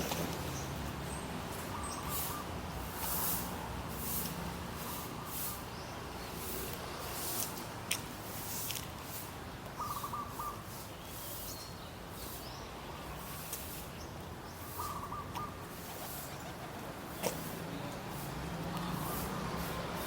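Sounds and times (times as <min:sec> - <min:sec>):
outdoor background noise: 0:00.0 - 0:20.0
bird trilled call: 0:09.8 - 0:10.7, 0:14.6 - 0:15.6.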